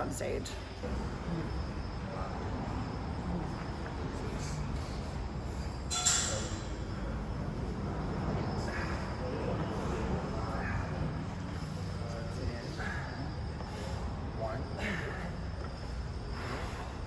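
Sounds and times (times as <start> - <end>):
low gym rumble: 0.0 - 17.0
sharp metal clank: 5.9 - 6.8.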